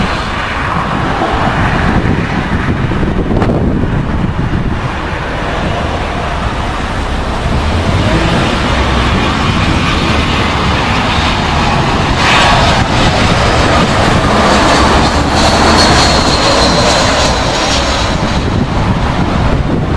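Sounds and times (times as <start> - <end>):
jet airliner passing: 0.0 - 19.9
wind buffeting microphone: 0.0 - 19.9
thin high whine: 9.8 - 18.7.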